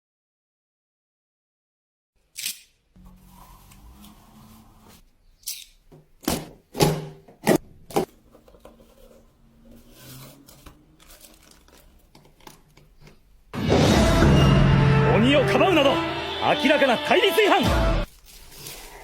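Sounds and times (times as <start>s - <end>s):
packaging tearing and rustling: 10.0s - 12.8s, 18.1s - 19.0s.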